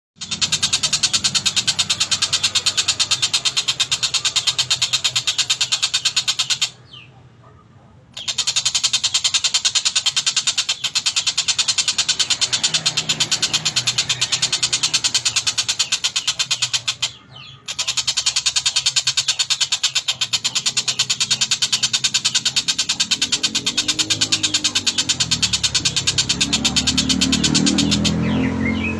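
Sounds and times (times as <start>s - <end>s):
bird harsh chattering call: 0.2s - 7.3s, 8.1s - 28.9s.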